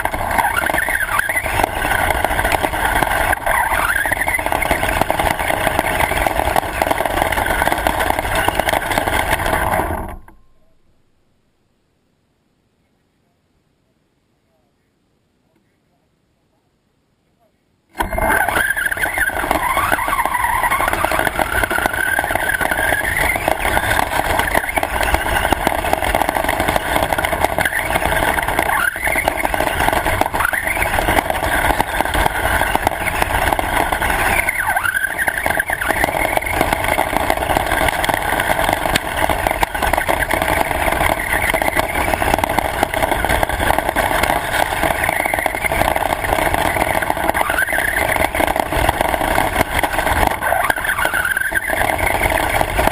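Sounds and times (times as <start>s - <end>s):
rc car motor whine: 0.0s - 10.4s, 17.9s - 52.9s
steady rumble: 0.0s - 11.5s, 18.0s - 52.9s.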